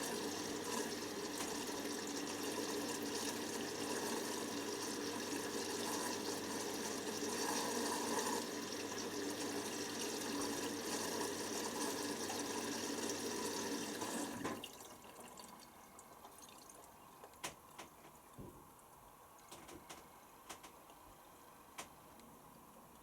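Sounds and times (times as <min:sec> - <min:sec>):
water rushing in washing machine: 0:00.0 - 0:18.6
faint ticks and drips: 0:14.5 - 0:23.0.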